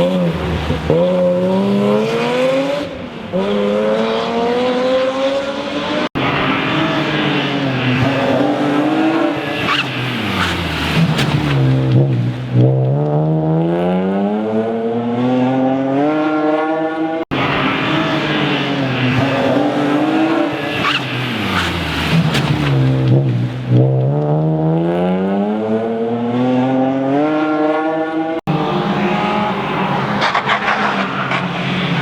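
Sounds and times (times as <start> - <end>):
rally car engine accelerating: 0.0 - 32.0.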